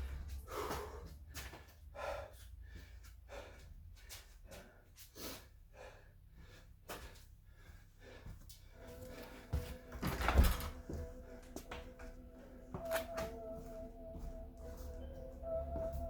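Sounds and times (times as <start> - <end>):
man breathing hard: 0.0 - 12.8.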